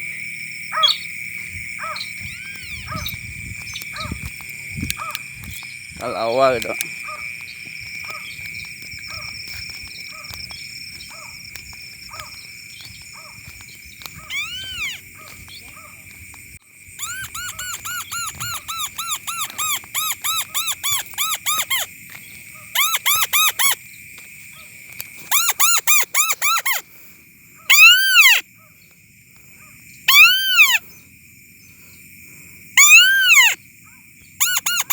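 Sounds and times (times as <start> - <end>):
squeaky whistled bird calls: 0.8 - 1.1, 14.2 - 15.0, 17.0 - 21.9, 22.8 - 23.8, 25.3 - 26.8, 27.7 - 28.4, 30.1 - 30.8, 32.8 - 33.6, 34.4 - 34.9.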